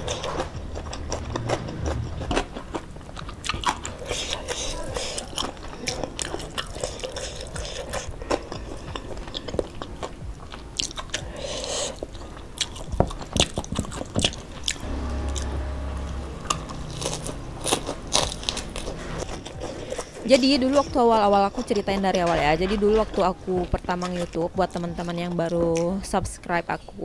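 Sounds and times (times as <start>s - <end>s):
low hum: 0.0s - 11.4s, 13.9s - 21.2s
wet chewing and crunching: 0.0s - 14.9s, 17.0s - 26.2s.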